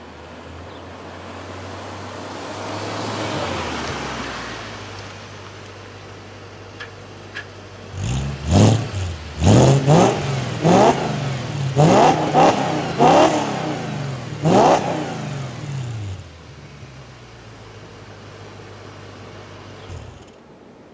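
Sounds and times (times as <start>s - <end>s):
car engine idling: 3.6s - 20.9s
car engine revving: 7.7s - 20.9s.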